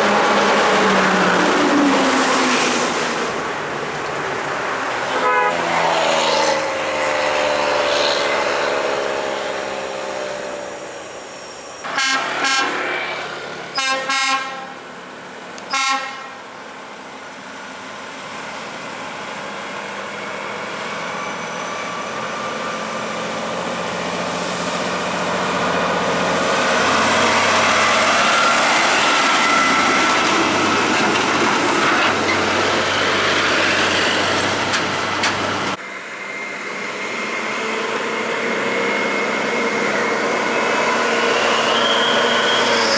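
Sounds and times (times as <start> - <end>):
air horn blasts: 5.1 - 5.9, 11.9 - 13.0, 13.7 - 14.8, 15.6 - 16.4.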